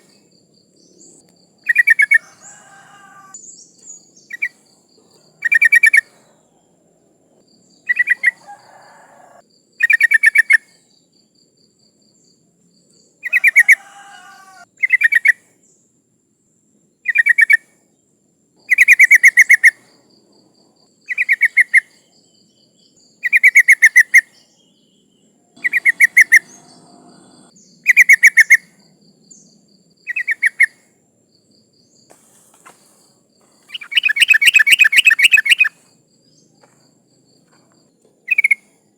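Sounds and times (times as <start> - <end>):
bird bubbly chattering: 25.6 - 27.5.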